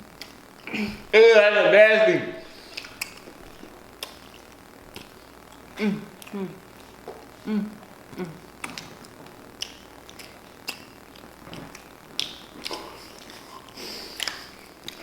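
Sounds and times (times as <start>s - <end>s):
people chewing cookies: 2.5s - 15.0s
person murmuring: 5.8s - 6.7s, 7.4s - 8.5s.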